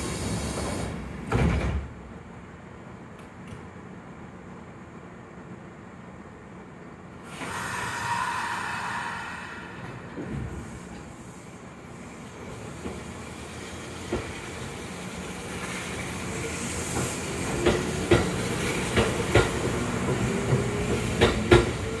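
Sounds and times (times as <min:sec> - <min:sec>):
air hiss: 0:07.2 - 0:12.8
wheels clacking over rail joints: 0:16.9 - 0:21.9.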